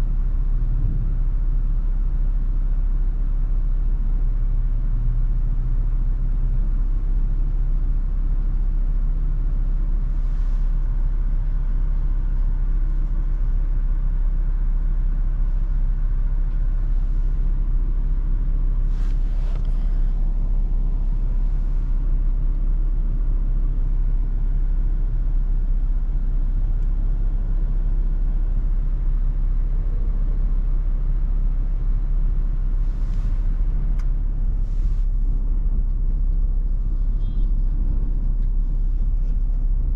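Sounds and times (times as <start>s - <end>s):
road noise: 0.0s - 1.6s, 9.1s - 13.5s, 15.6s - 39.9s
vehicle engine rumble: 0.0s - 39.9s.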